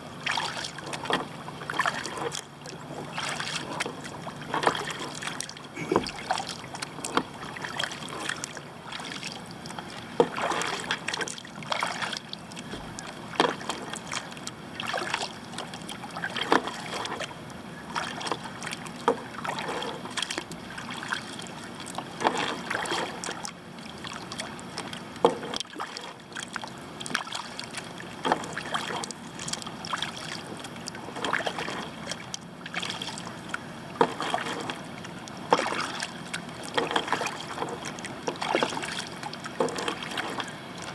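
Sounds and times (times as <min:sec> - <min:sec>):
water washing: 0:00.0 - 0:17.2, 0:34.0 - 0:34.9, 0:35.5 - 0:40.9
paddle splashing and dripping: 0:00.0 - 0:40.9.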